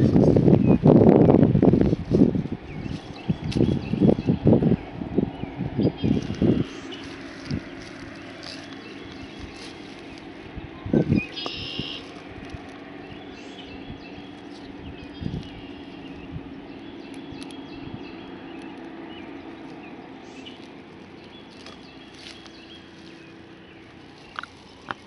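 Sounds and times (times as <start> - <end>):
steady low hum: 0.0 - 25.0
bird chirps: 10.9 - 12.2, 13.0 - 25.0.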